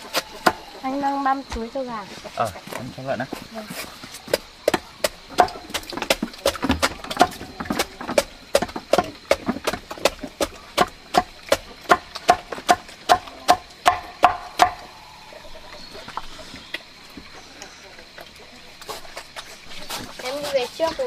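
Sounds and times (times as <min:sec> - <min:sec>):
blade chopping banana stalk: 0:04.3 - 0:14.8.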